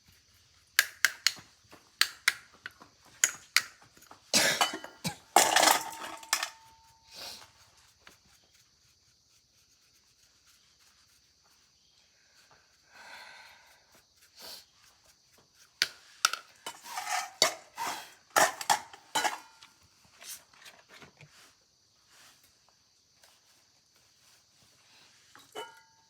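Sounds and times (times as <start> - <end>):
bicycle tools clinking: 4.6 - 6.9, 16.7 - 19.7
tool scraping: 16.2 - 21.0.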